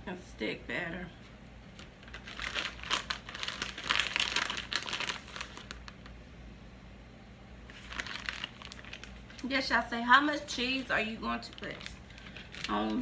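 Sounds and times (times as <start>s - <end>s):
plastic packaging crinkling: 1.7s - 6.2s, 7.7s - 13.0s.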